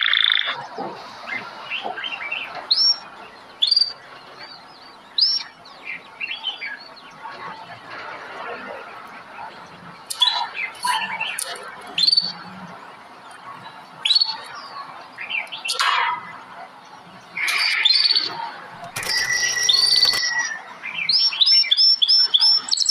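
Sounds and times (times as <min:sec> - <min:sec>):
songbirds chirping: 0:00.0 - 0:22.9
quick repeated chirps: 0:17.4 - 0:22.9
buzzy bird call: 0:19.0 - 0:22.9.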